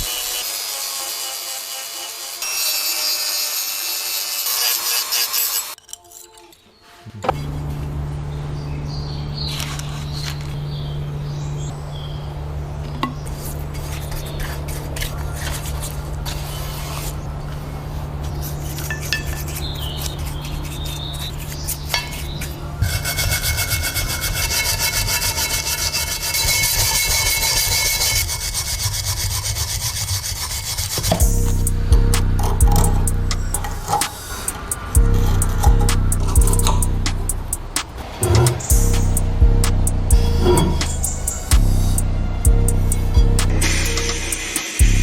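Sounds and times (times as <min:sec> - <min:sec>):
steady low hum: 0:07.1 - 0:28.5, 0:31.1 - 0:45.0
abrasive rubbing and filing on metal: 0:13.3 - 0:45.0.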